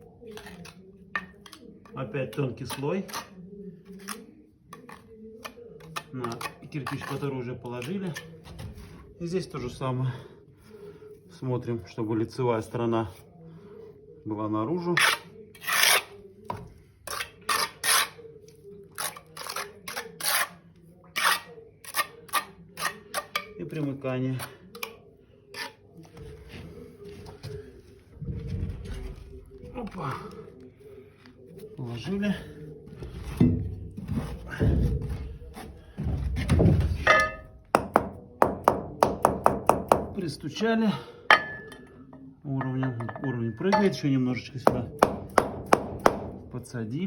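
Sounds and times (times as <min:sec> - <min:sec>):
trowel scraping mortar on brick: 0:02.3 - 0:08.4, 0:14.9 - 0:16.2, 0:17.0 - 0:18.2, 0:18.9 - 0:23.9, 0:25.5 - 0:25.8
brick clink: 0:37.0 - 0:37.6, 0:41.3 - 0:41.9, 0:42.6 - 0:44.0
mallet tapping on brick: 0:37.1 - 0:40.2, 0:44.7 - 0:46.3.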